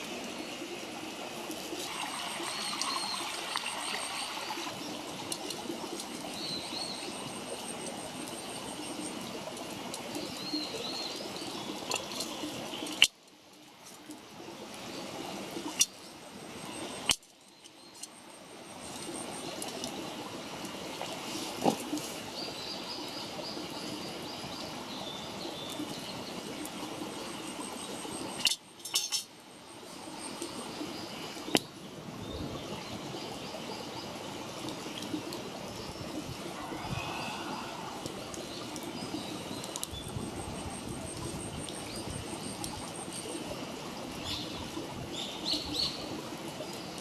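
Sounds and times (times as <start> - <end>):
campfire crackling: 0.0 - 18.2, 25.7 - 29.6, 34.2 - 47.0
faint birds chirping: 21.1 - 47.0.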